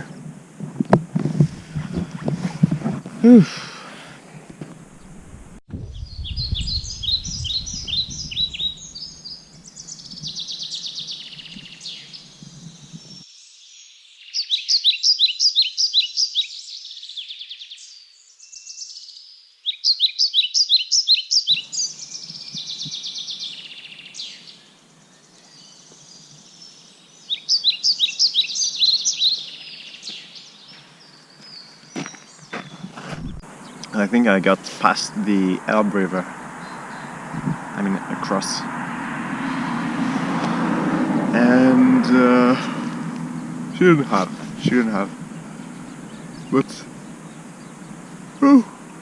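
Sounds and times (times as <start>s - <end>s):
songbird singing: 0.0s - 49.0s
brief low rumble: 4.8s - 9.4s.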